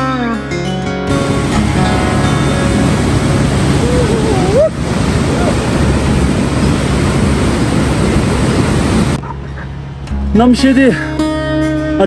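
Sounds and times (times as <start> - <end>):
loud rushing noise: 1.1 - 9.2.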